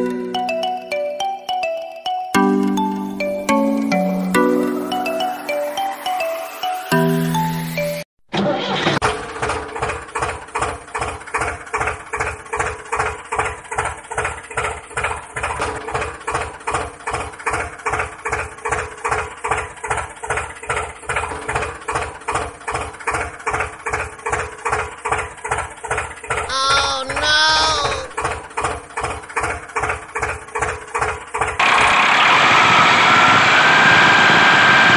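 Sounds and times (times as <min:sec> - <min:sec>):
toy tractor engine chugging: 0:09.1 - 0:31.6.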